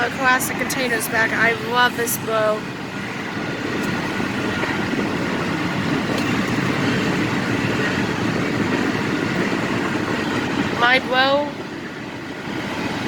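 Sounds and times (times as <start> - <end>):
freight train rolling past: 0.0 - 13.0.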